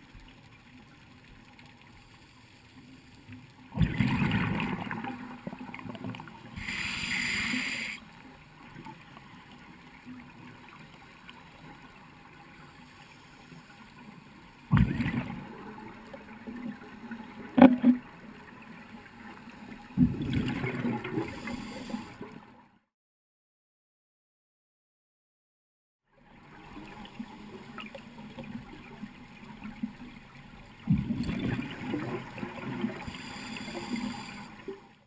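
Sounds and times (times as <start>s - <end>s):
exhaled bubbles underwater: 3.7s - 7.9s, 14.7s - 18.1s, 19.8s - 22.4s, 30.7s - 35.0s
regulator inhalation hiss: 6.6s - 8.0s, 21.3s - 22.2s, 33.1s - 34.6s.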